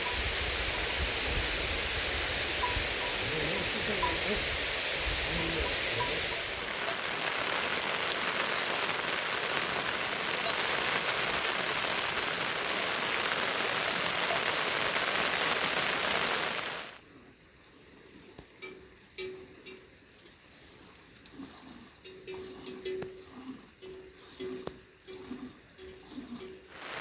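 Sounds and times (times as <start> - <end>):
heavy rain hissing: 0.0 - 17.0, 26.7 - 27.0.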